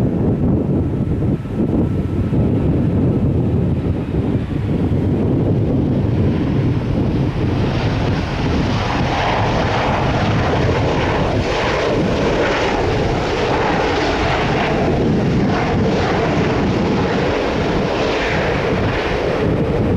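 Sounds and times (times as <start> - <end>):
jet engine roar: 0.0 - 19.9.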